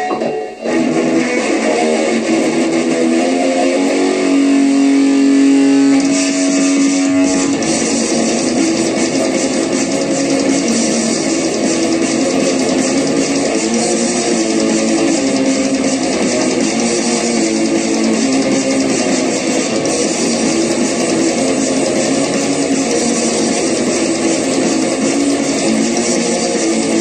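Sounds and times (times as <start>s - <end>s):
guitar music: 0.0s - 27.0s.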